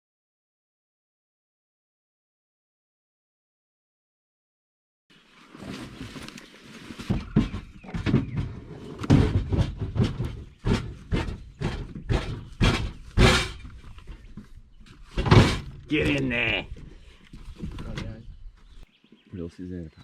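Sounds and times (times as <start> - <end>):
camping gear knocks and thumps: 5.5 - 18.3.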